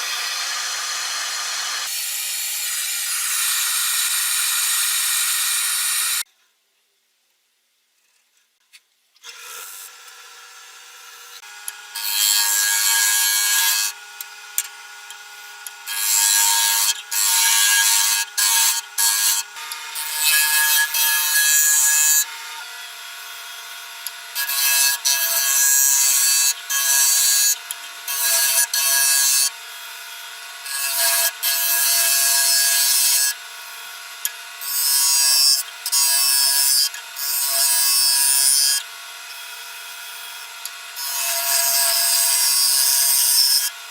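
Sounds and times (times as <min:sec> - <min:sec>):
lathe motor hum: 0:00.0 - 0:01.9
tool scraping spinning wood: 0:00.0 - 0:06.2.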